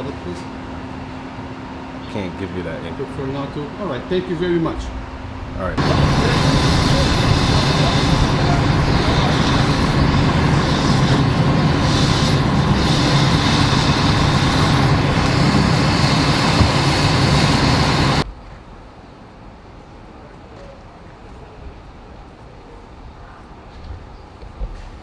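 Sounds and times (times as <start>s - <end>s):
faint outdoor background: 0.0s - 25.0s
large machine rumbling: 2.0s - 18.3s.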